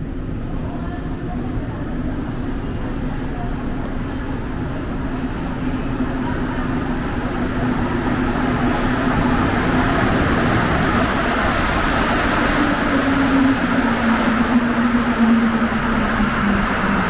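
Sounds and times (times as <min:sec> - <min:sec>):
train running: 0:00.0 - 0:17.0.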